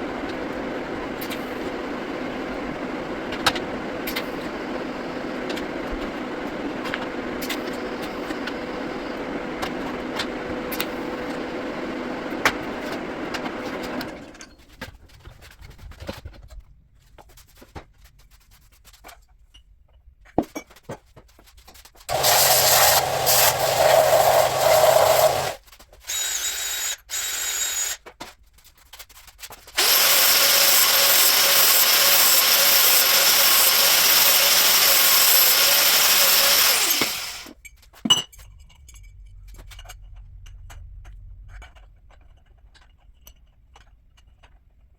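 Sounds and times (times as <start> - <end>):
steady machine hum: 22.1 - 25.6
power tool running: 22.1 - 28.0, 29.8 - 37.6.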